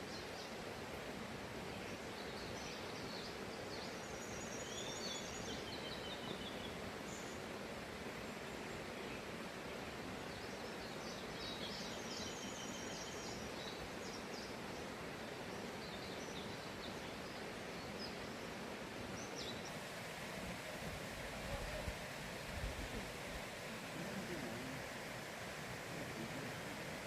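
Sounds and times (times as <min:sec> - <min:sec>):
stream rushing: 0:00.0 - 0:27.0.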